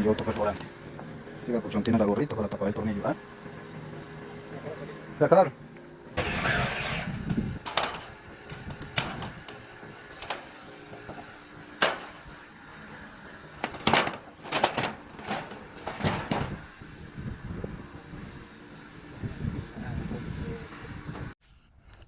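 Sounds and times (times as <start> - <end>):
knocks and clatters on tiled roof: 7.6 - 16.6.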